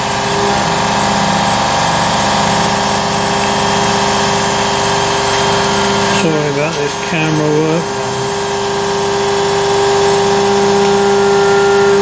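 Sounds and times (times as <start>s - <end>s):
air compressor running: 0.0s - 12.0s
cnc mill spindle cutting: 0.0s - 12.0s.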